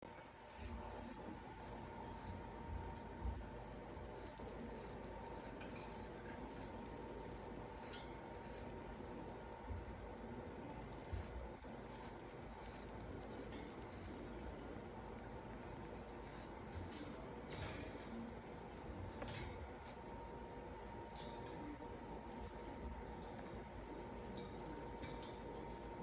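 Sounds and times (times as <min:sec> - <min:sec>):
sugar glider clicking: 0:03.3 - 0:14.5.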